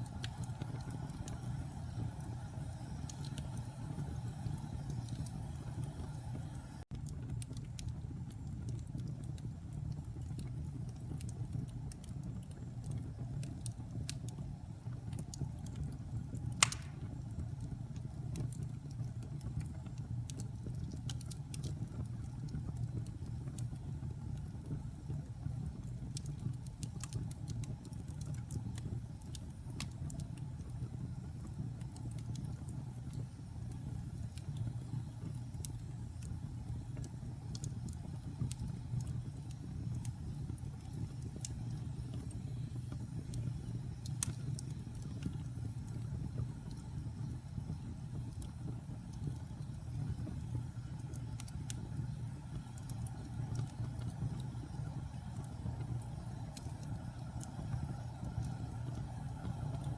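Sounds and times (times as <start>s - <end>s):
fire crackling: 0.0s - 59.9s
fire rumbling: 0.0s - 59.9s
sharp fire pop: 16.6s - 17.2s.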